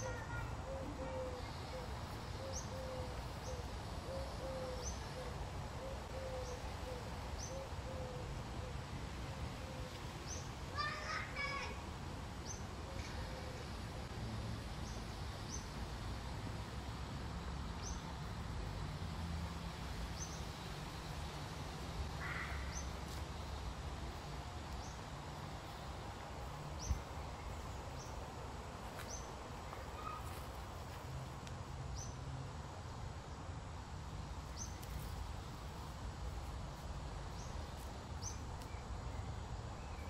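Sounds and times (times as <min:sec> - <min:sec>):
bird high call: 0:30.0 - 0:30.3.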